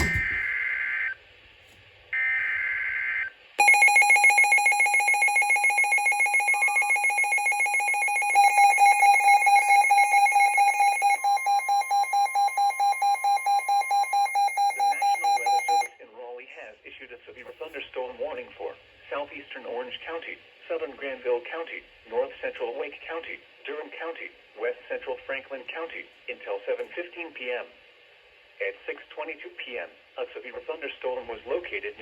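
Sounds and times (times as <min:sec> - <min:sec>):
alarm beeping rapidly: 0:03.6 - 0:15.9.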